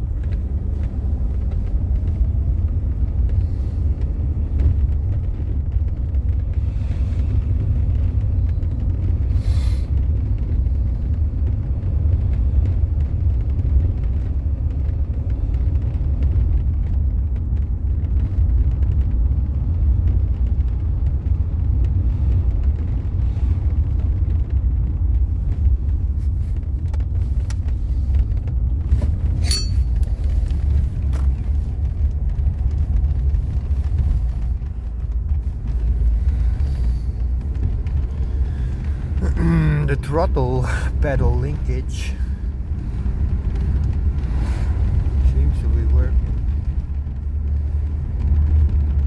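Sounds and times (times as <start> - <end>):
car engine running: 0.0 - 49.0
short high squeak: 29.4 - 30.0.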